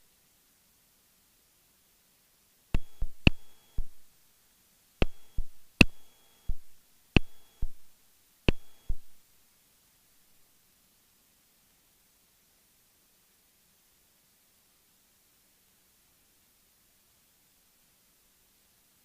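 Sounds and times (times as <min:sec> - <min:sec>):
sharp electronic clicks in headset: 0:02.8 - 0:04.1, 0:05.0 - 0:09.2.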